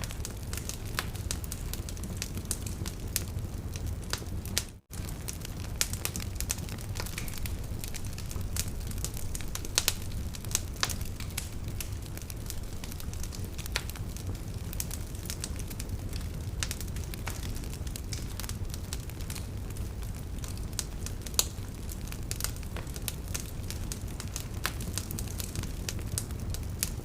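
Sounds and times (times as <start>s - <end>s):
open fire crackling and popping: 0.0s - 27.0s
steady low rumble: 5.0s - 14.4s.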